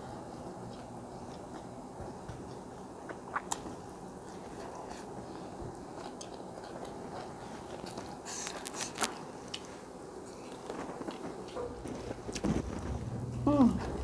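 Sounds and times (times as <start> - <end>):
chewing and mouth sounds: 0.4 - 13.0.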